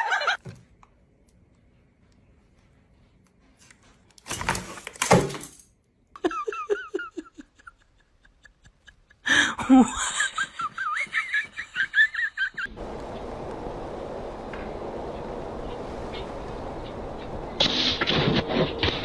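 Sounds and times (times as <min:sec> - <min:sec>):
people laughing: 0:00.0 - 0:00.4, 0:06.2 - 0:12.7.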